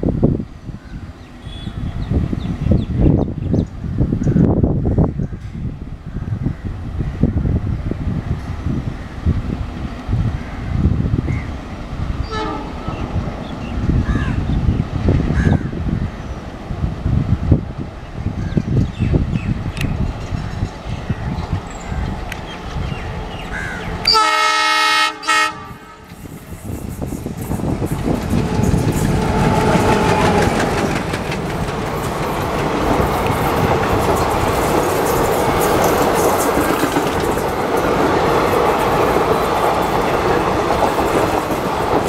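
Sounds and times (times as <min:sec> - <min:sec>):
train rumbling past: 0:00.0 - 0:42.0
locomotive horn blasts: 0:01.4 - 0:01.9, 0:12.2 - 0:12.8, 0:24.0 - 0:26.2
wheels clattering on rails: 0:26.2 - 0:42.0.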